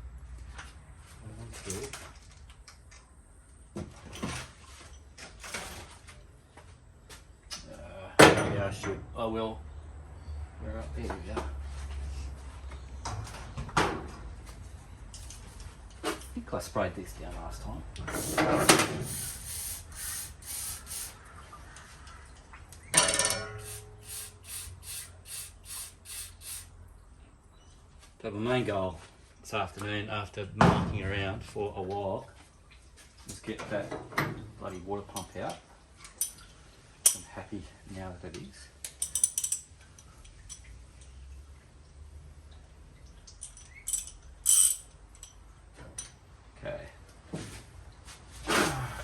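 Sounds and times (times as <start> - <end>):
ringing metallic clank: 22.9 - 24.0
metal hand tools clinking: 23.0 - 24.2, 38.9 - 39.7, 43.4 - 45.4
hand tool strokes on metal: 23.4 - 26.7.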